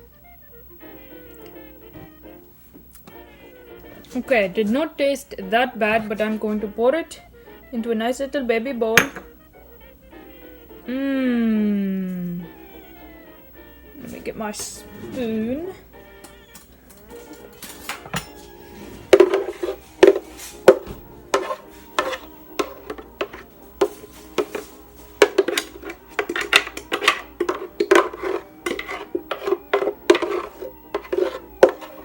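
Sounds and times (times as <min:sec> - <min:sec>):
spoon clinking against bowl: 0:09.0 - 0:09.3, 0:16.1 - 0:18.5, 0:19.1 - 0:32.0.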